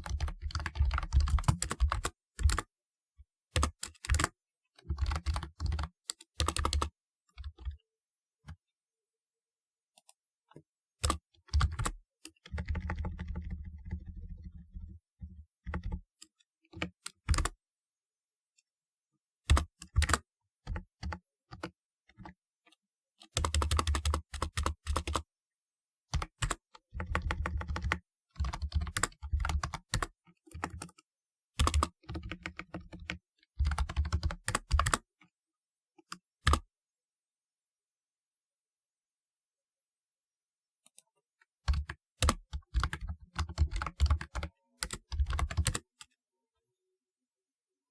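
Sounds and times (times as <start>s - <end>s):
keyboard keystrokes clicking: 41.7s - 45.9s.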